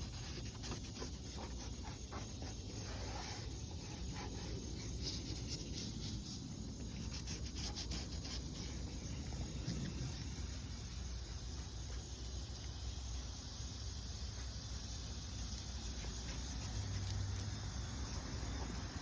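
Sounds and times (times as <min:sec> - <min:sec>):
sandpaper rubbing on plastic: 0:00.0 - 0:10.2.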